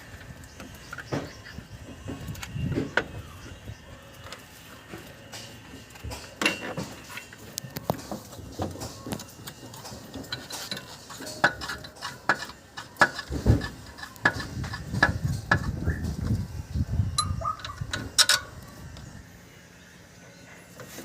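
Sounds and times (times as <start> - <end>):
metal tools clinking: 17.2 - 18.6.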